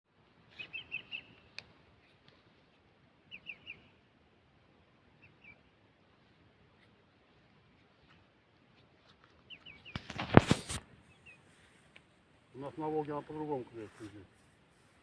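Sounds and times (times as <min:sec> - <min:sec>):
faint outdoor hiss: 0:00.1 - 0:15.0
bird chirping: 0:00.5 - 0:01.6, 0:03.2 - 0:04.1, 0:05.1 - 0:05.8, 0:09.4 - 0:10.2, 0:11.0 - 0:11.7.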